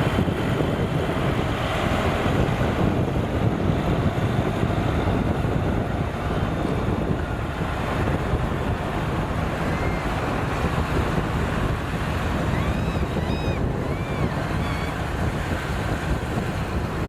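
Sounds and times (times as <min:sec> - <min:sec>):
road traffic rumble: 0:00.0 - 0:17.0
wind buffeting microphone: 0:00.0 - 0:17.0
short high chirping calls: 0:12.5 - 0:15.0.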